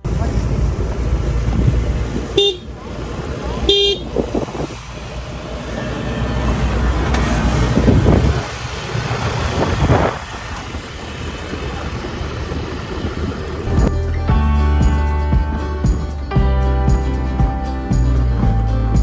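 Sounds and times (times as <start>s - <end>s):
vehicle driving on road: 0.0s - 19.0s
short horn toot: 2.4s - 2.7s, 3.7s - 4.2s.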